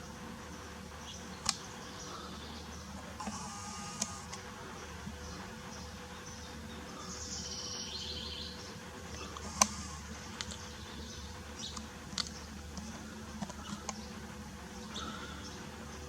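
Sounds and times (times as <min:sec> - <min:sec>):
steady low hum: 0:00.0 - 0:16.0
sharp clicks: 0:01.4 - 0:01.7, 0:03.2 - 0:04.5, 0:09.1 - 0:10.7, 0:11.6 - 0:14.0
faint bird chirps: 0:05.1 - 0:10.0.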